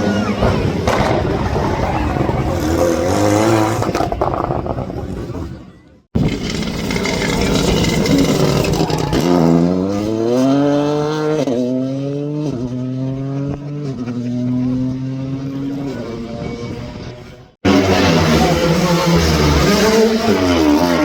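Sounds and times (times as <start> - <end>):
road noise: 0.0 - 21.0
rally car engine accelerating: 6.2 - 21.0.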